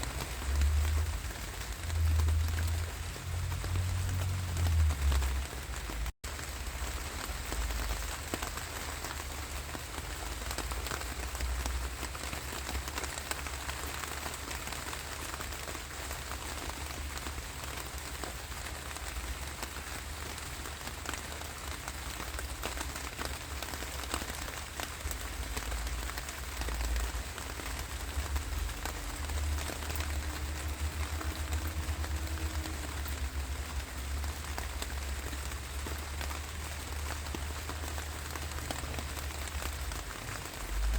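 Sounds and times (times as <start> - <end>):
low rumble: 0.0 - 6.1
raindrops ticking on a surface: 0.0 - 40.9
steady rain falling: 0.0 - 40.9.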